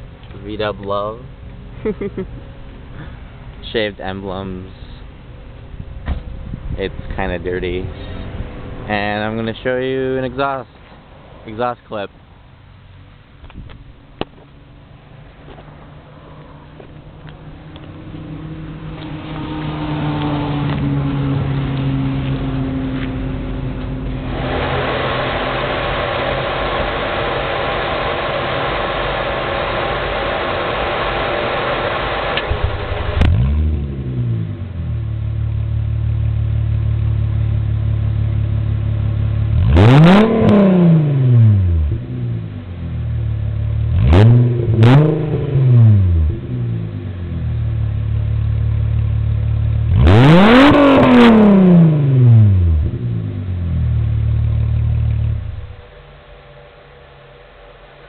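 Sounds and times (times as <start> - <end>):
engine idling and revving: 12.4 - 58.0
steady rushing noise: 13.4 - 33.4.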